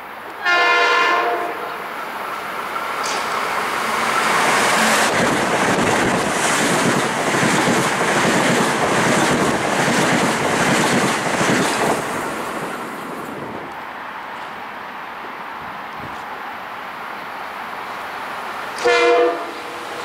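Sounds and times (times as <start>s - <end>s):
electric train passing at speed: 0.0s - 20.0s
wind buffeting microphone: 4.0s - 13.8s.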